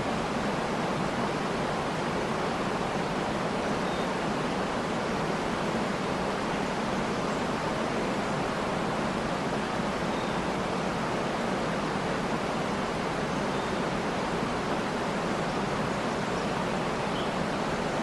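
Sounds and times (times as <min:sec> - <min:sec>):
faint bird chirp: 0:03.7 - 0:04.2, 0:10.0 - 0:10.8, 0:13.3 - 0:13.9, 0:15.3 - 0:18.0.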